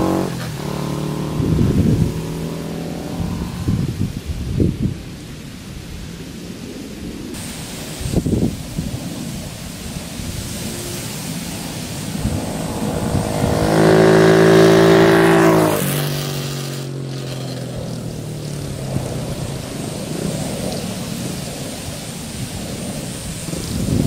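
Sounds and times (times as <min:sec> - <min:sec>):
motorcycle engine: 0:00.0 - 0:04.2, 0:09.0 - 0:24.0
wind buffeting microphone: 0:00.0 - 0:24.0.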